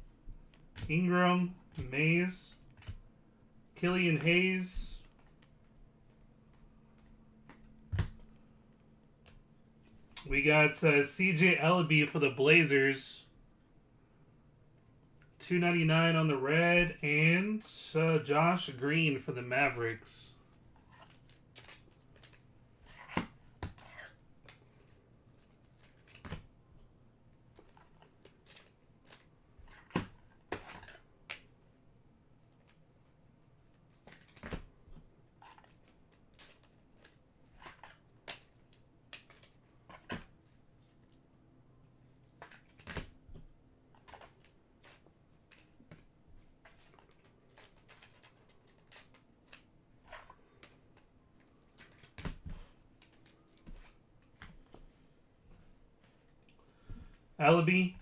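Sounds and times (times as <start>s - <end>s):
trading cards clicking and rustling: 20.8s - 26.5s, 33.9s - 34.7s, 35.4s - 41.2s, 42.3s - 43.2s, 43.9s - 54.8s.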